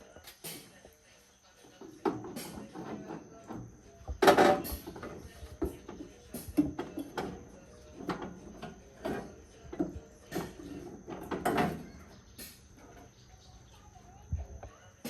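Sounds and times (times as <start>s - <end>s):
tools knocking and clattering: 1.8s - 13.2s.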